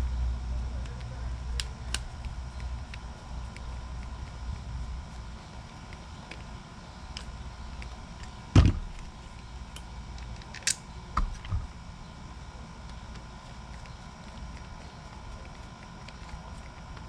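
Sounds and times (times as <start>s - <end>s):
low steady background noise: 0.0s - 17.0s
sharp knock: 8.6s - 8.9s.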